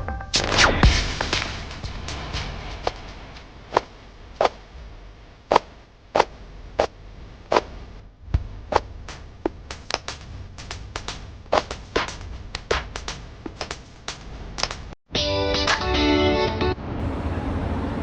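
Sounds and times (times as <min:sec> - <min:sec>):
faint low hum: 0:01.5 - 0:13.5.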